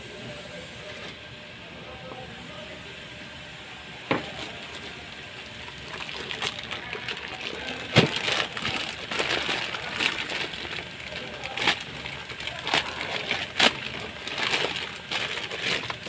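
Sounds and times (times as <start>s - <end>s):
rustling: 5.6s - 16.0s.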